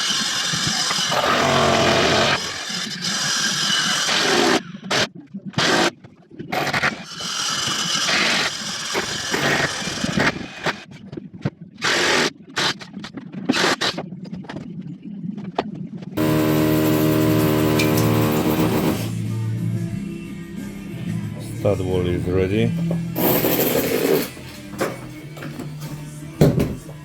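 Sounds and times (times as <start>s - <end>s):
power tool bursts: 0.6s - 2.8s, 16.2s - 19.2s
background music: 16.2s - 27.0s.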